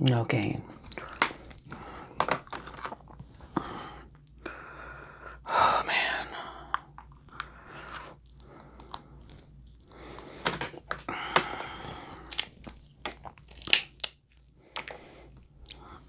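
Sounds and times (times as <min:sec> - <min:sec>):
shells crunching and cracking: 0:00.8 - 0:03.2, 0:08.2 - 0:15.9.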